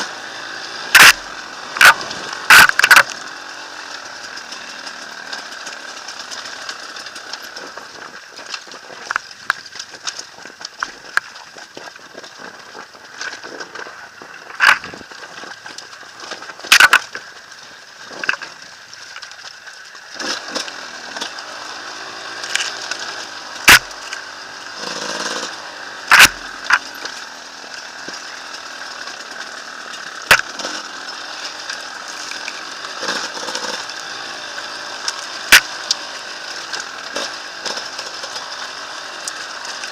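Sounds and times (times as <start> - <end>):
dirt bike engine revving: 0.0 - 11.4, 20.0 - 39.9
sharp knocks and thumps: 1.0 - 1.2, 26.1 - 26.8.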